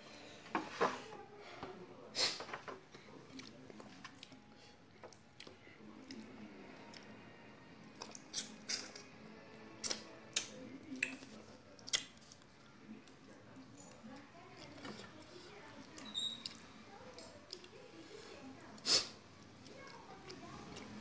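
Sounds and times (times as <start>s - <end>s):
person chewing food: 3.3s - 7.1s, 7.9s - 9.2s, 9.8s - 17.8s.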